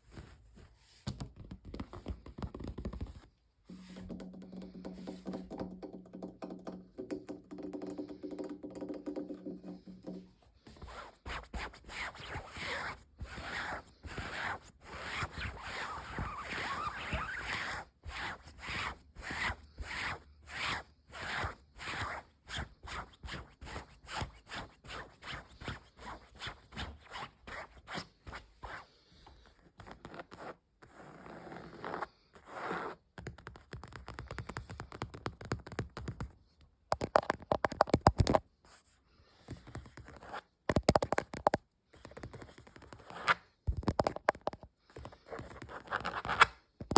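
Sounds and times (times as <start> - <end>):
scratching on objects: 9.7 - 28.0.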